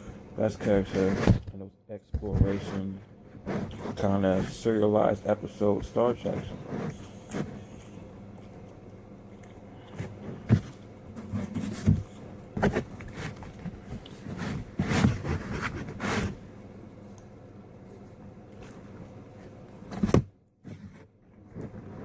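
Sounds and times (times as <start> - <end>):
person chewing and crunching food: 6.3 - 11.2.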